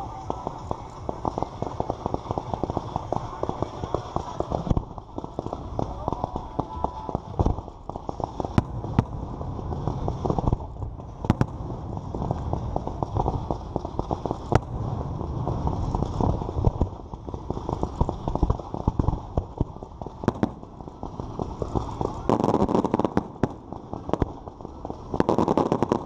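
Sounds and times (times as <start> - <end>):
fireworks crackling: 0.0 - 26.0
loud fireworks bangs: 0.0 - 26.0.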